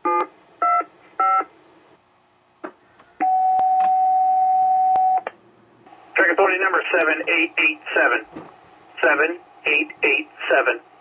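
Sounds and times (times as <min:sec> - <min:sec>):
long steady beep: 0:03.2 - 0:05.2
radio click: 0:06.9 - 0:07.2.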